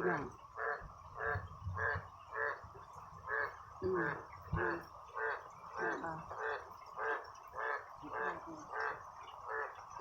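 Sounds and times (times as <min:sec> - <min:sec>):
frogs croaking: 0:00.0 - 0:10.0.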